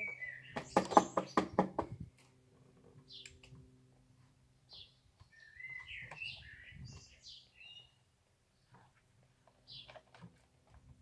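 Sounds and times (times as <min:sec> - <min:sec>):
small birds chirping: 0:00.0 - 0:02.2, 0:03.0 - 0:03.6, 0:04.5 - 0:10.3.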